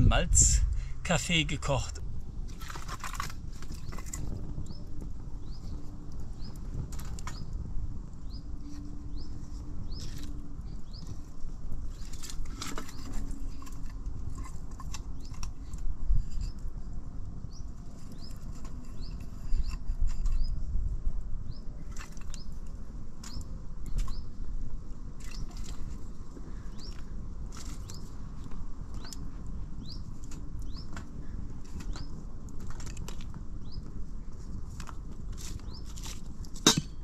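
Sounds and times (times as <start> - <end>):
low rumble: 0.0 - 2.5.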